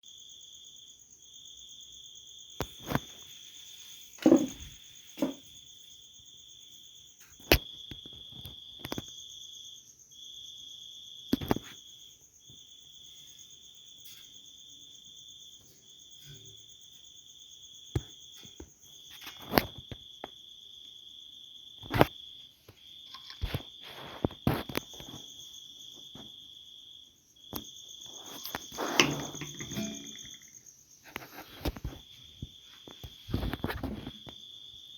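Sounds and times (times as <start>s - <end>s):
insect trilling: 27.8s - 31.4s
handling noise: 28.2s - 30.5s
sharp clicks and knocks: 28.4s - 30.5s
thuds: 28.4s - 30.5s.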